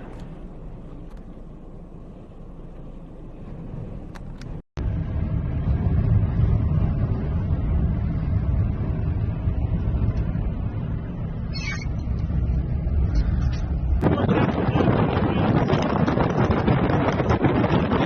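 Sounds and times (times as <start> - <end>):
storm wind buffeting microphone: 3.4 - 18.0.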